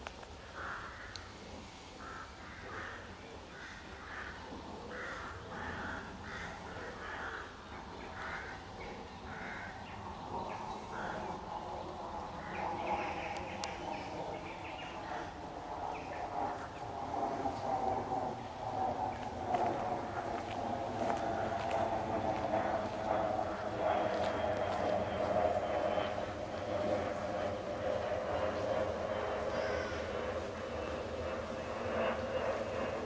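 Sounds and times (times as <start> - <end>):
steady drone: 0.9 - 33.0
harsh rasping bird calls: 29.5 - 30.2.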